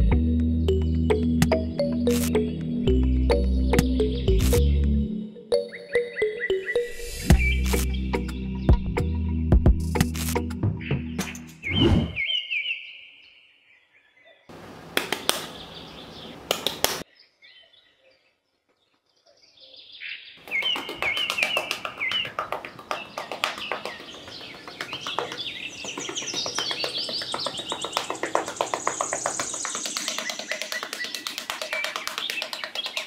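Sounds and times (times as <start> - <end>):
birds chirping: 0.0 - 9.2, 10.6 - 33.0
rapid clicking: 20.5 - 33.0.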